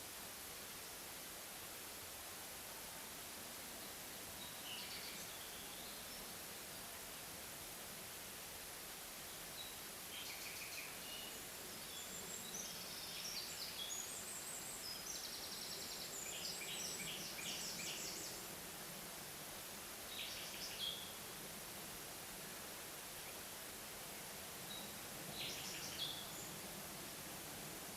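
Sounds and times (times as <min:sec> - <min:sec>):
faint forest background hiss: 0:00.0 - 0:27.9
songbirds chirping and trilling: 0:24.6 - 0:27.2.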